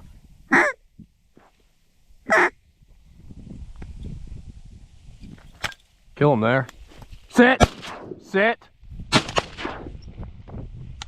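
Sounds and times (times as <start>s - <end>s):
duck call quacks: 0.5s - 0.8s, 2.3s - 2.5s
wind rumble: 2.1s - 6.2s, 6.8s - 11.0s.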